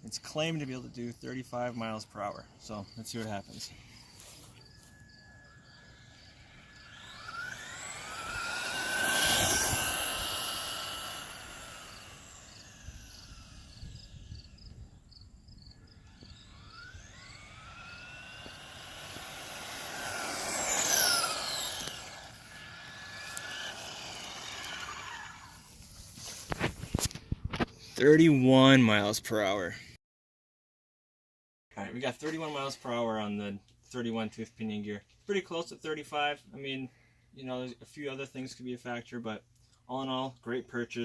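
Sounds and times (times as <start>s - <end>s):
crickets chirping: 0.2s - 7.9s, 11.7s - 18.6s
rc car motor whining past: 3.6s - 27.1s.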